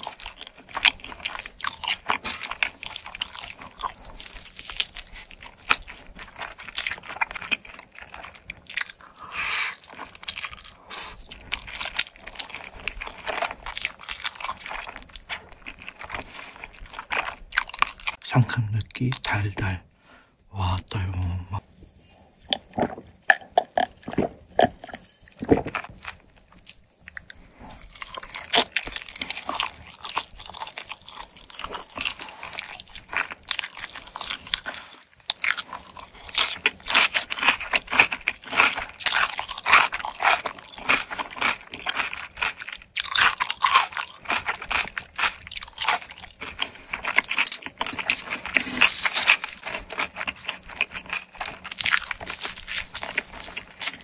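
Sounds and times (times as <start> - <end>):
pizza crust crunching: 0.0 - 18.2, 22.5 - 54.0
gulps of a drink: 22.5 - 25.8.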